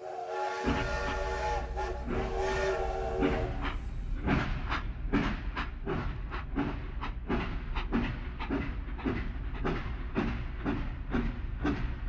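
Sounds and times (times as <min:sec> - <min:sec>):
steam whistle: 0:00.0 - 0:03.8
train wheels clickety-clack: 0:00.4 - 0:12.0.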